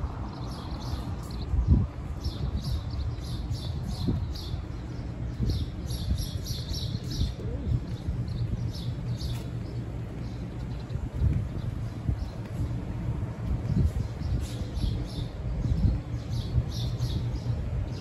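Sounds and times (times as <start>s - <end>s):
low outdoor rumble: 0.0s - 18.0s
small birds chirping: 0.3s - 12.8s.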